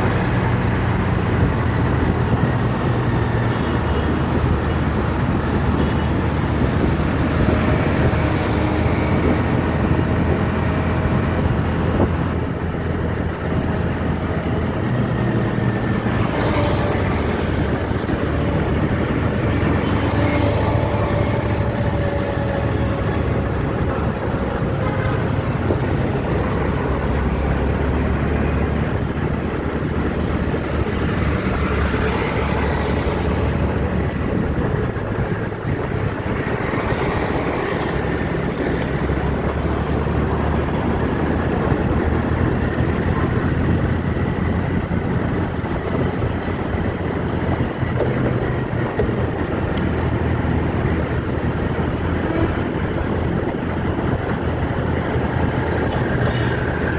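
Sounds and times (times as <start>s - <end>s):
road vehicle engine rumble: 0.0s - 56.9s.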